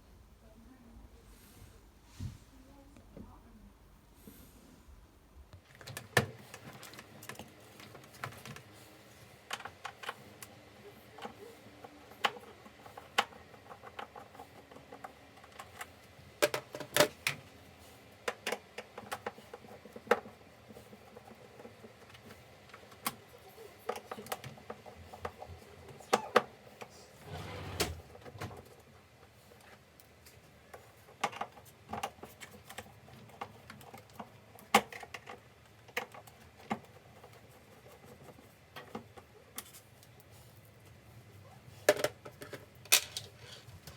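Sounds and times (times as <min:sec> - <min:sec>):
hard objects clicking and knocking: 0:41.8 - 0:43.9.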